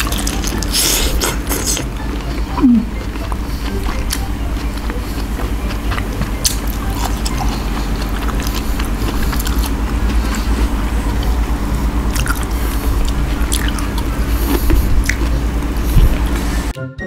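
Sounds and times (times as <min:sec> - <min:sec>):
wet chewing and biting: 0:00.0 - 0:16.5
mouth clicks and smacks: 0:13.5 - 0:15.3.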